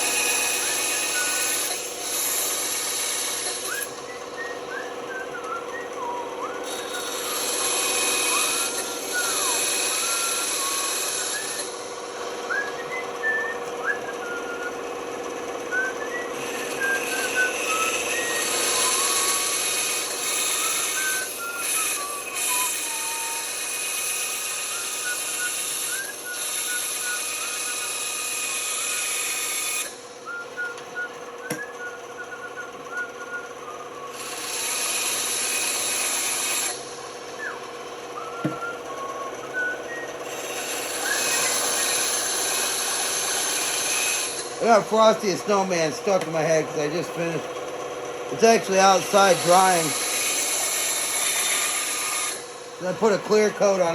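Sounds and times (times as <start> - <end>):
person whistling a tune: 0.0 - 1.7, 3.5 - 14.9, 15.6 - 23.8, 24.6 - 29.1, 30.2 - 35.4, 37.4 - 43.4, 48.4 - 50.1
power tool running: 0.0 - 53.9.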